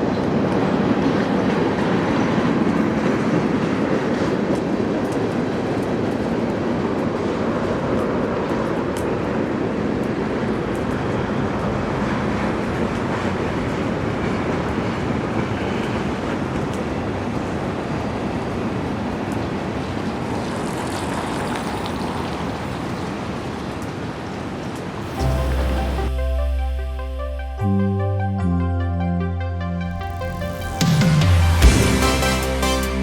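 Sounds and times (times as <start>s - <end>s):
music: 25.0s - 33.0s.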